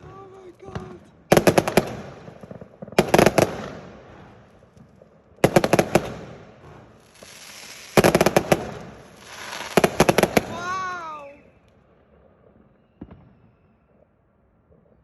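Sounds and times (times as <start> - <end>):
firework bangs: 0.0 - 14.6
firework hiss: 6.1 - 11.3.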